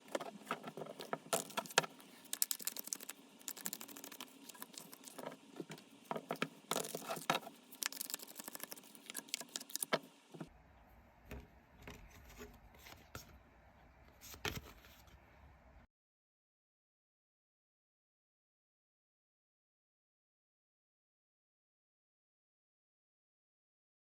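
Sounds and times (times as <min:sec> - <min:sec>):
cards being shuffled: 0:00.1 - 0:10.5.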